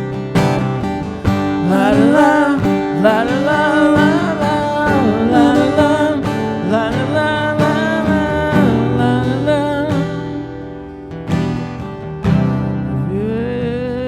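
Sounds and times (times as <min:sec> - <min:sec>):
acoustic guitar strumming: 0:00.0 - 0:14.0
wordless singing: 0:01.3 - 0:10.8.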